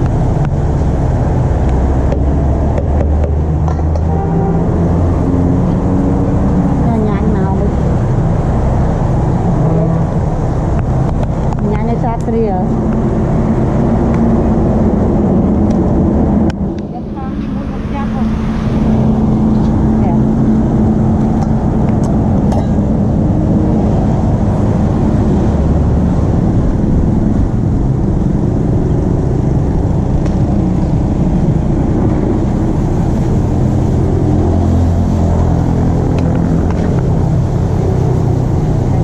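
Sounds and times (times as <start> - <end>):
vehicle engines rumbling: 0.0 - 39.0.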